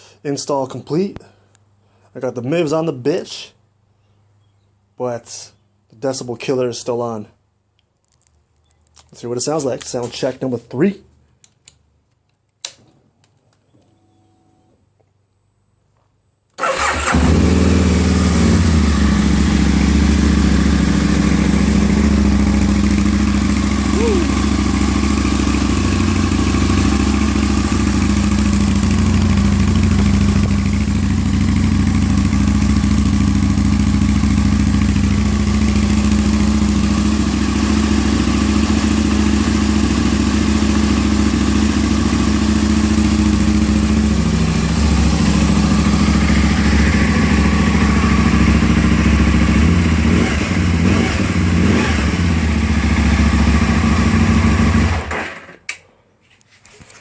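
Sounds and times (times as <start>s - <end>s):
motorcycle engine idling: 16.7s - 55.0s.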